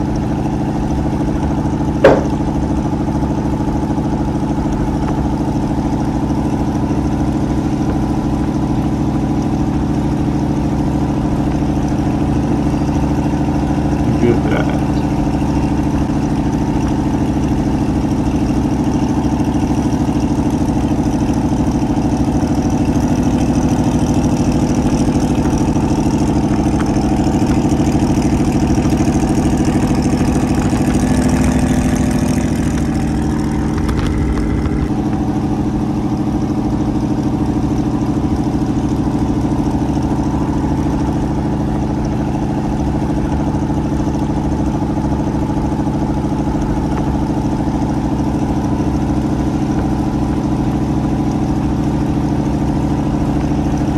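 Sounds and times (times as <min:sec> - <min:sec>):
vehicle engine running: 0:00.0 - 0:53.9.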